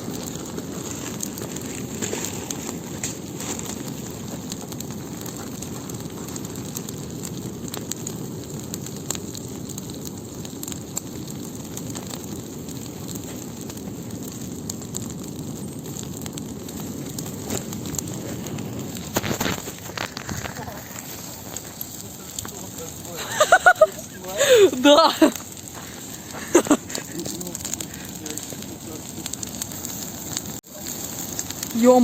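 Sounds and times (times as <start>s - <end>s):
bonfire crackling and popping: 0.0s - 32.0s
fire rushing: 0.0s - 32.0s.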